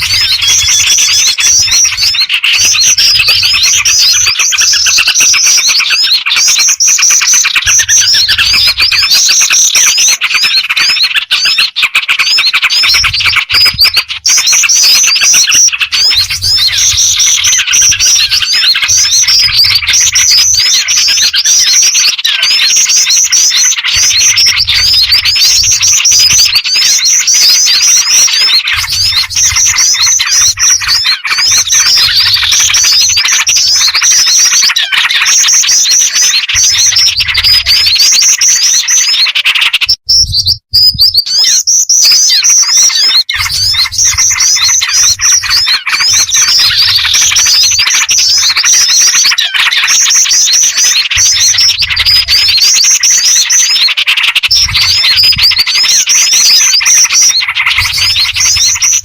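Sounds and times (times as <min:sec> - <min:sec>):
small birds chirping: 0:00.0 - 0:59.0
high fast run of chirps: 0:12.7 - 0:59.0.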